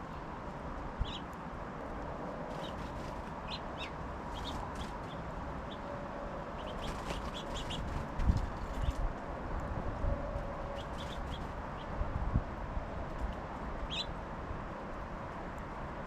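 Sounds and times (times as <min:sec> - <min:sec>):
songbirds chirping: 0:00.0 - 0:01.4, 0:02.4 - 0:09.0, 0:10.6 - 0:12.0, 0:13.8 - 0:14.2.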